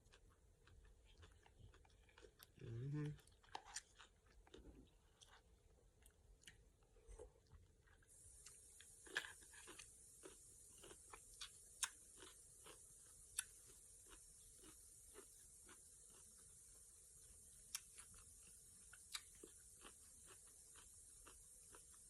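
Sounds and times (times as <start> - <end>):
crunchy chewing: 0.0 - 22.0
steady high hiss: 8.1 - 22.0.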